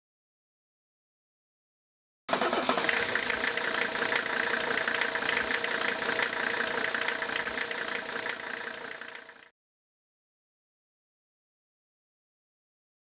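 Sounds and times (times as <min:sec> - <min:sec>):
diesel engine idling: 0:02.3 - 0:09.5.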